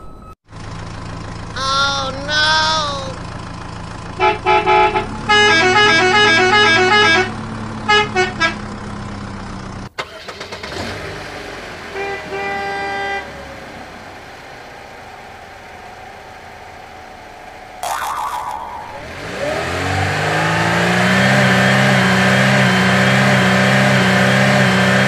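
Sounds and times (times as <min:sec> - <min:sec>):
engine drone: 0:00.5 - 0:25.0
musical horn tune: 0:04.2 - 0:08.6
vehicle horn honks: 0:04.2 - 0:08.7, 0:11.9 - 0:13.4.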